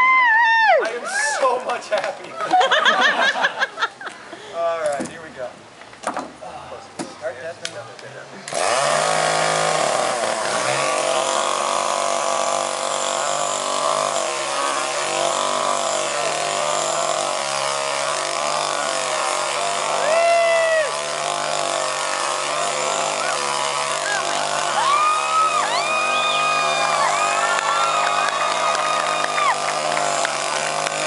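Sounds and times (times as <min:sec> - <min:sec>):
whoop-like calls: 0:00.0 - 0:01.2, 0:20.0 - 0:21.0, 0:24.7 - 0:29.7
chainsaw engine idling: 0:08.5 - 0:20.1, 0:20.7 - 0:31.0.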